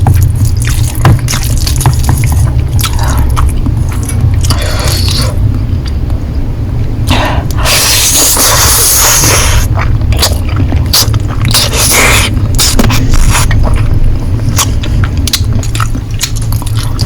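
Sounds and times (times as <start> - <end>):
wet chewing of noodles: 0.0 - 6.0, 7.1 - 17.0
low hum: 0.0 - 17.0
mouth clicks and smacks: 9.6 - 17.0.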